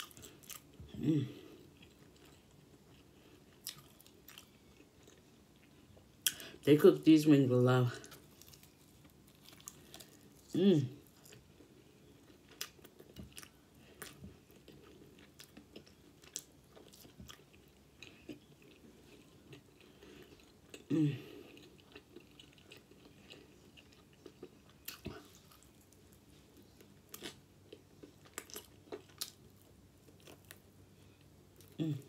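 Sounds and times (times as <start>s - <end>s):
person humming: 0.9s - 1.5s, 10.6s - 11.0s
chewing and lip smacking: 1.8s - 6.4s.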